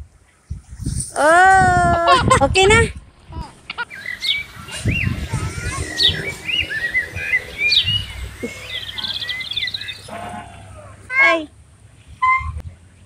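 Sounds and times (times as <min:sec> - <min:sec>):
birds chirping: 0:03.7 - 0:11.4
bird trill: 0:03.8 - 0:10.9.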